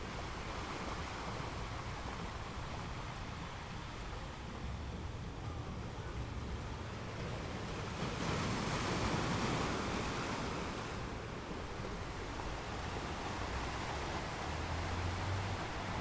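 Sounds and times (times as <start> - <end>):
ocean waves washing on shore: 7.0 - 16.0.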